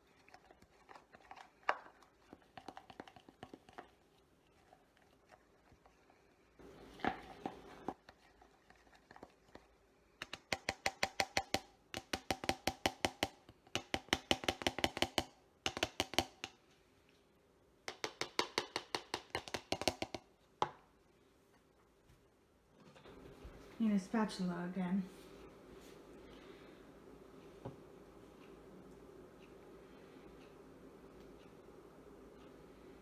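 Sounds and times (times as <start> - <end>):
spoon stirring thick batter: 0.0 - 16.6, 17.9 - 21.0.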